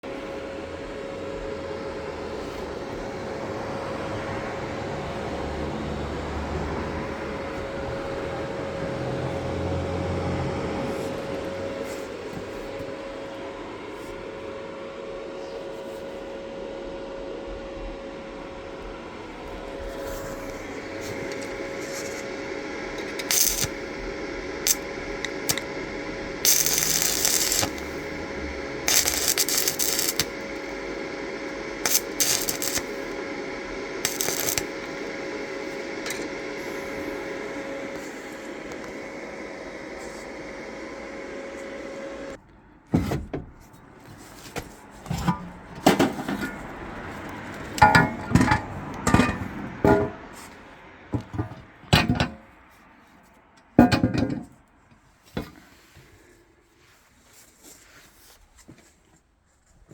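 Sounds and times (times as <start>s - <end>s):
steady machine hum: 0.0s - 42.4s
short hissing bursts: 31.8s - 33.2s.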